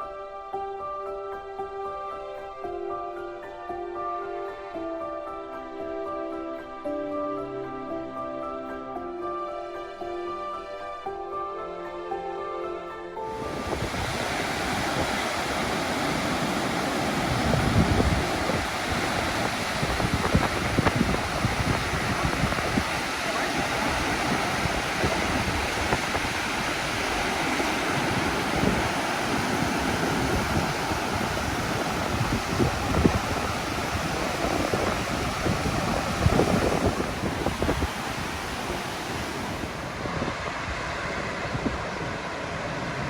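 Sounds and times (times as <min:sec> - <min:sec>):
waterfall rushing: 0:13.2 - 0:43.0
wind buffeting microphone: 0:13.3 - 0:43.0.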